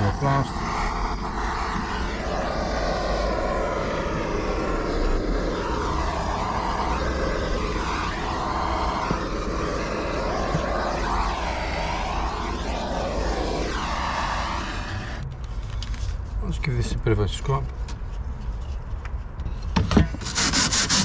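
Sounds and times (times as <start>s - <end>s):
blowtorch roaring: 0.0s - 15.2s, 20.2s - 21.0s.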